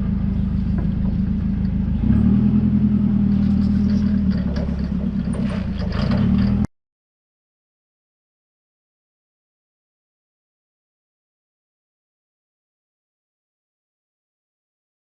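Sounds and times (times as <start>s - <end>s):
engine running steadily: 0.0s - 6.7s
light clattering: 3.4s - 6.7s.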